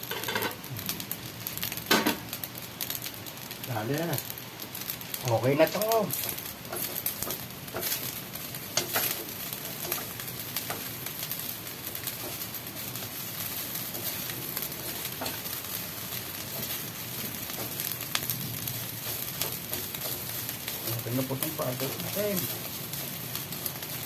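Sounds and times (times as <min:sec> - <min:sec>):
food sizzling in frying pan: 0:00.0 - 0:24.0
utensil clicking against pan: 0:08.7 - 0:10.9.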